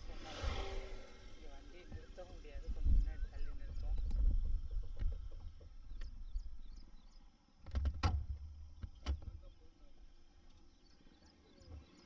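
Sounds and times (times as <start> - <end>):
wind on microphone: 0.0 - 6.8
small birds chirping: 1.5 - 7.6, 8.6 - 12.0.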